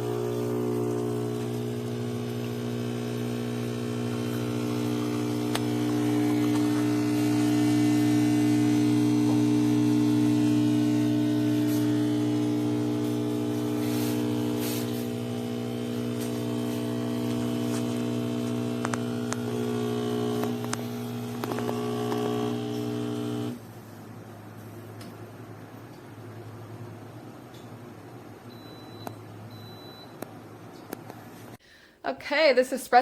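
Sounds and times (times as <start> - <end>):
espresso machine pump buzzing hum: 0.0 - 23.7.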